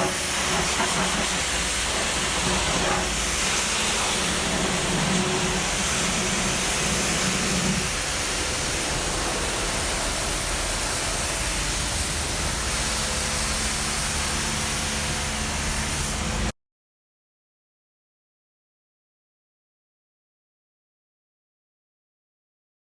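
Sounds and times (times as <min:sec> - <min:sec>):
steady hiss: 0:00.0 - 0:16.5.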